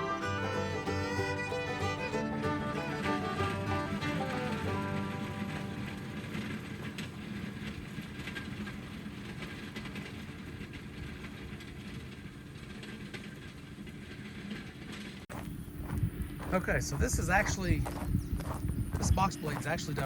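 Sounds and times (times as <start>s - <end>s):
background music: 0.0s - 7.0s
tractor engine running: 0.0s - 20.0s.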